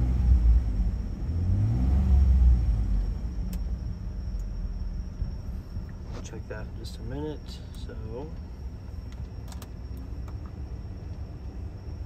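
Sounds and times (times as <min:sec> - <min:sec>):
engine revving: 0:00.0 - 0:03.3.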